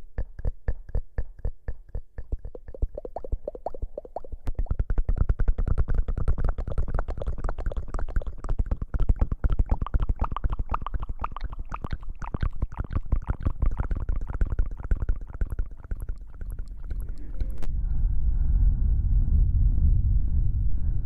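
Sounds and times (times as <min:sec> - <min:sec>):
rubbing and scratching on microphone: 0:00.0 - 0:17.7
heavy low rumble: 0:17.0 - 0:21.0.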